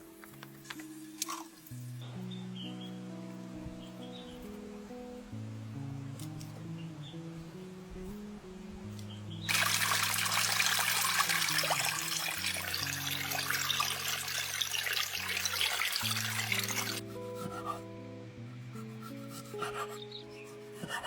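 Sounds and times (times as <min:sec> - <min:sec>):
soft background music: 0:00.0 - 0:21.0
water pouring: 0:01.2 - 0:01.6, 0:09.5 - 0:17.0.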